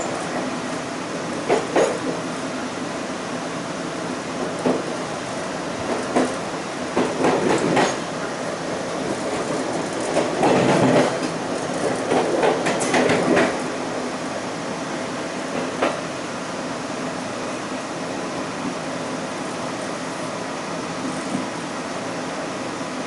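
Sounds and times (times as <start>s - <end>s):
train wheels clattering on rails: 0.0s - 2.4s, 4.3s - 14.1s, 15.5s - 16.1s.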